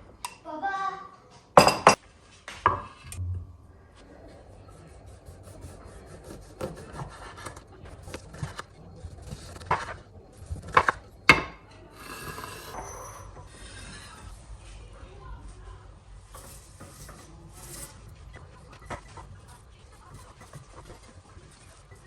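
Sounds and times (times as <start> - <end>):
scraping on a hard surface: 11.8 - 14.3, 16.3 - 22.0.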